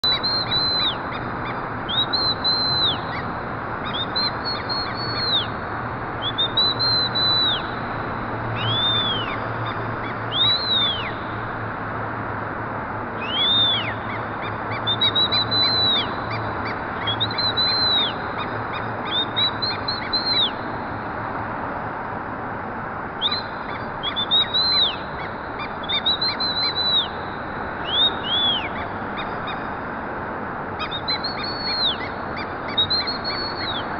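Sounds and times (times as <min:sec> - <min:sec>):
parrots calling: 0:08.6 - 0:11.2, 0:13.2 - 0:20.6, 0:27.8 - 0:29.8, 0:30.8 - 0:33.9.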